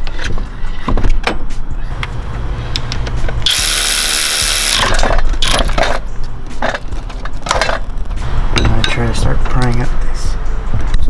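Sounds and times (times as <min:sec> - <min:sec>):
hand tools clanking on metal: 0:04.8 - 0:07.9.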